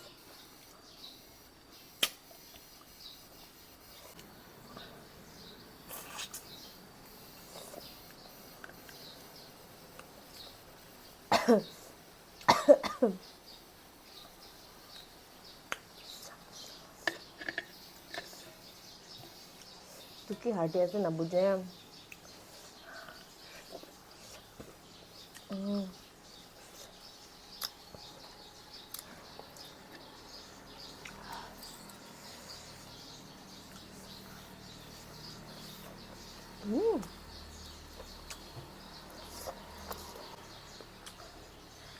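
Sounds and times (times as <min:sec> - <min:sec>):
faint bird chirps: 0:00.0 - 0:41.9
person coughing: 0:11.3 - 0:11.8, 0:12.5 - 0:13.2.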